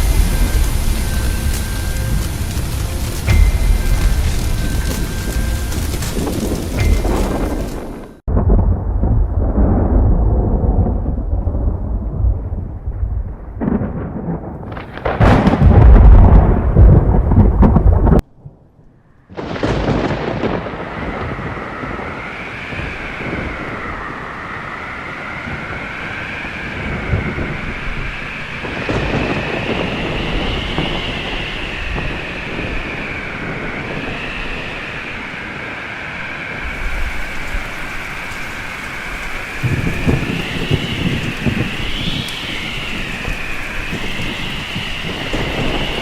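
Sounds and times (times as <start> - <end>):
wavering whistle: 0.0 - 8.2, 21.0 - 46.0
rain: 0.0 - 46.0
rolling thunder rumble: 0.0 - 46.0.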